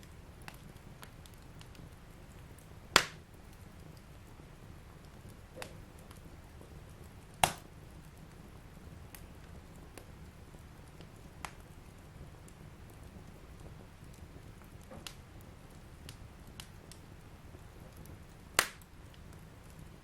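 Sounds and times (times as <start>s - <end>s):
fire crackling in a fireplace: 0.0s - 20.0s
loud pop of fire: 2.9s - 3.2s, 5.5s - 6.2s, 7.3s - 7.7s, 14.7s - 15.2s, 18.5s - 18.9s.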